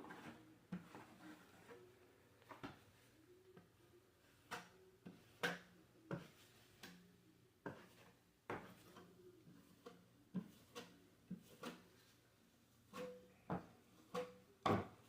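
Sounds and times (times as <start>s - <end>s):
drywall knife taps and scrapes: 4.4s - 12.1s, 12.9s - 15.0s.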